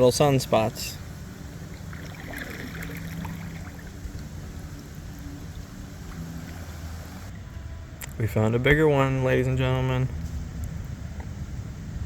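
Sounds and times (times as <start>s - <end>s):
paddle water splashing: 0.0s - 7.3s
steady low rumble: 0.0s - 12.0s.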